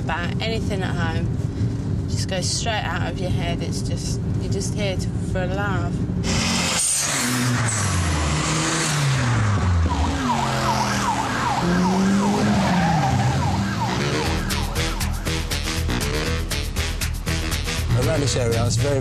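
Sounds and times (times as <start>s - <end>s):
cars revving past: 6.2s - 16.6s
high warbling squeal: 6.9s - 15.6s
music with steady beat: 14.2s - 19.0s.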